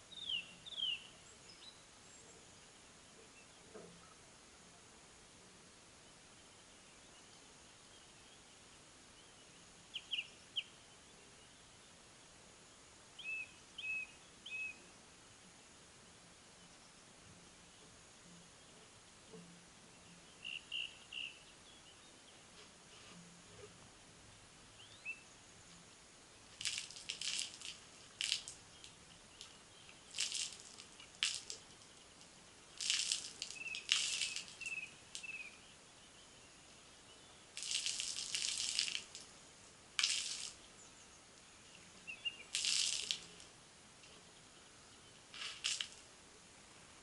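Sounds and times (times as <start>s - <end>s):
harsh scratchy bird calls: 29.9s - 35.6s
high bird chirps: 33.5s - 35.6s.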